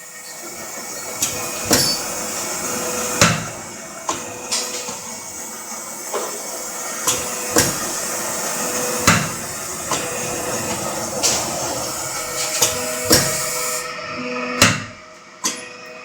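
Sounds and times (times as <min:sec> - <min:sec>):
punch press hissing: 0:00.2 - 0:14.0
metallic clunks: 0:01.2 - 0:02.2, 0:09.0 - 0:13.6.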